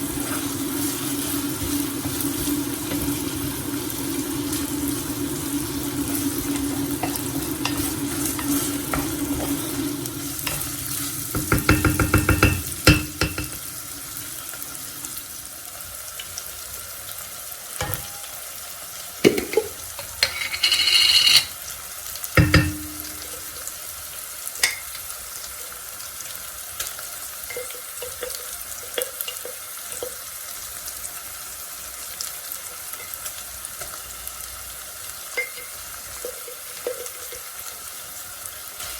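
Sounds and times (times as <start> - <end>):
food sizzling: 0.0 - 38.9
tap running: 6.4 - 13.6
utensils and dishes clinking: 6.5 - 13.6, 17.8 - 18.5, 19.2 - 21.6, 22.4 - 23.6, 27.5 - 30.2, 35.4 - 37.6.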